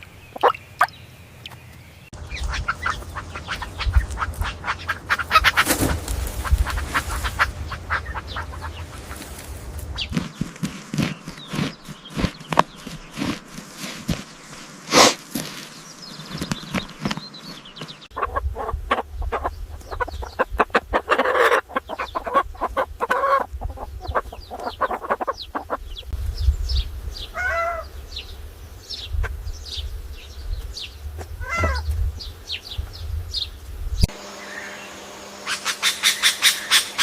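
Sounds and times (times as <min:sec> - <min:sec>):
high peeps: 0:00.0 - 0:01.6
chickens clucking: 0:00.0 - 0:26.2, 0:30.6 - 0:32.6, 0:35.4 - 0:37.0
low rumble: 0:02.2 - 0:10.5.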